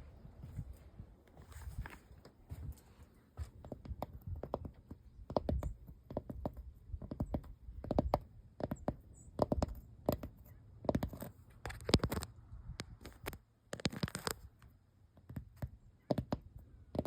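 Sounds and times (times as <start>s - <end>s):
sharp tapping on building surface: 3.6s - 11.3s.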